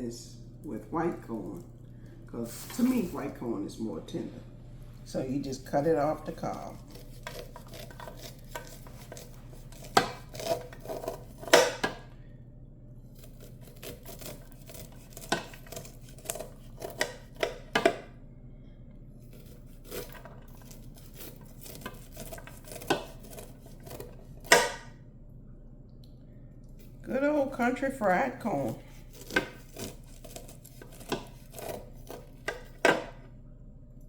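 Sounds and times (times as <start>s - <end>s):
low steady hum: 0.0s - 34.0s
knife scraping corn cob: 5.8s - 11.8s, 13.2s - 17.6s, 19.2s - 24.7s, 28.5s - 33.0s.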